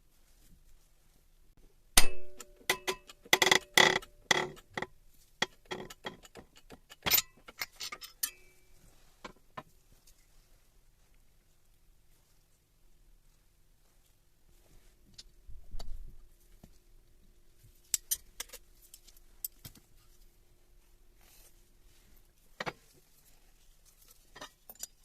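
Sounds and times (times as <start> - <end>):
metal tools clinking and knocking: 2.0 - 8.7, 24.3 - 25.0.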